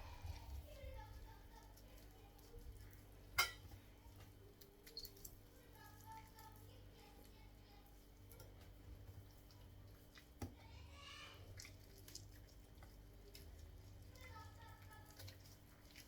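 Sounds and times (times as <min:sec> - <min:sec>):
soft squelch: 0:00.0 - 0:16.0
hands pulling meat off bone: 0:11.4 - 0:16.0.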